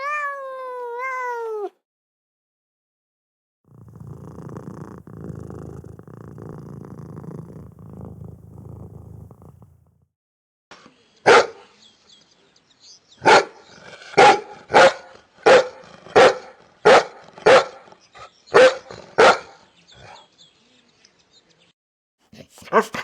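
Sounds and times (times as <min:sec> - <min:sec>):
dog barking: 0:11.3 - 0:11.6, 0:13.2 - 0:13.6, 0:14.2 - 0:17.9, 0:18.5 - 0:19.6, 0:22.4 - 0:23.0.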